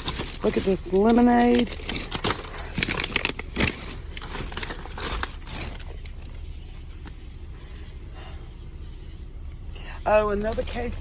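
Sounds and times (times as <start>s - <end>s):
bags crinkling and rustling: 0.0s - 7.1s.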